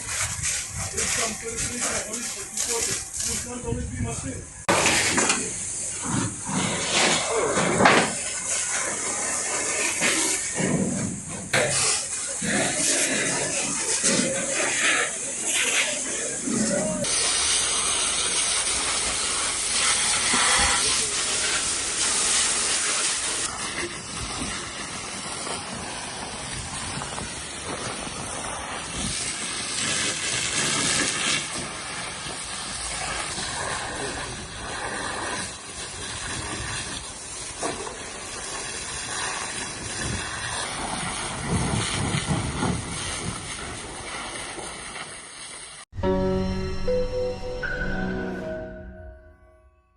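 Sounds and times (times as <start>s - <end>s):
hose water hissing on fire: 0.0s - 45.9s.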